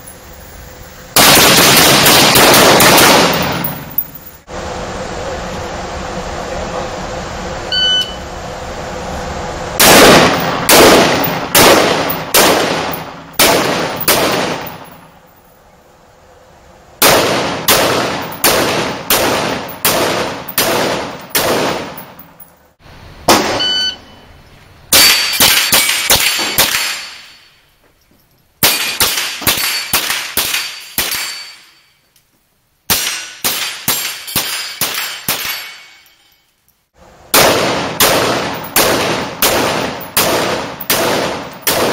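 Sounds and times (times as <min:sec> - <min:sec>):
rifle shots: 0:01.2 - 0:04.0, 0:09.8 - 0:15.0, 0:17.0 - 0:22.3, 0:23.3 - 0:23.7, 0:24.9 - 0:27.4, 0:28.6 - 0:31.4, 0:32.9 - 0:35.8, 0:37.3 - 0:41.9.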